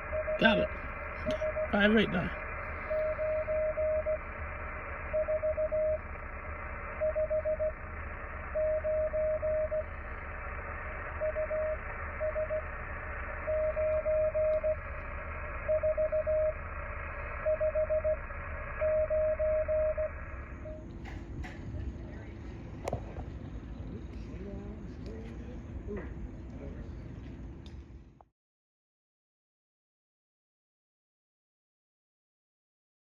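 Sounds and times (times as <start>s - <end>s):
morse code tone: 0.0s - 4.3s, 5.0s - 6.2s, 6.9s - 10.0s, 11.1s - 12.8s, 13.4s - 14.9s, 15.6s - 16.6s, 17.4s - 20.8s
radio band hiss: 0.0s - 15.8s.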